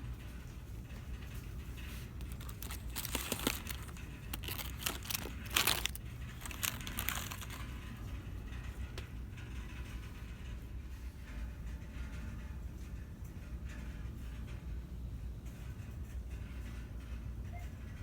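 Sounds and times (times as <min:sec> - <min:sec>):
plastic packaging crinkling: 0:02.1 - 0:07.8.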